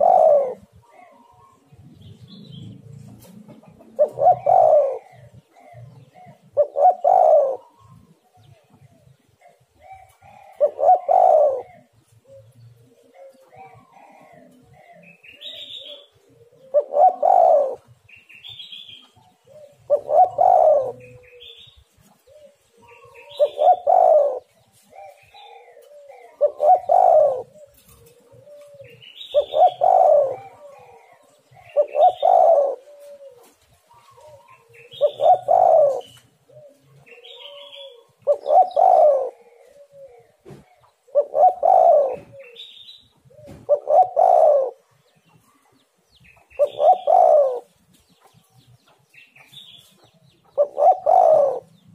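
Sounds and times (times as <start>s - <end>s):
dove cooing: 0.0s - 48.7s, 49.4s - 51.9s.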